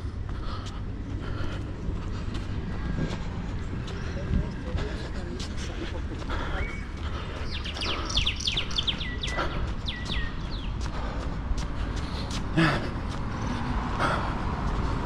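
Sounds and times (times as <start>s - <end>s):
wind rumble on microphone: 0.0s - 7.3s
light footsteps: 0.0s - 15.0s
songbird chirping: 6.2s - 11.4s.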